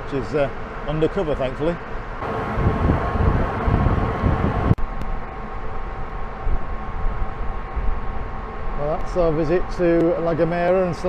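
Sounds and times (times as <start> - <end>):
faint steady tones: 2.2 - 4.8
ship hum: 2.2 - 4.8
wind buffeting microphone: 2.2 - 4.8.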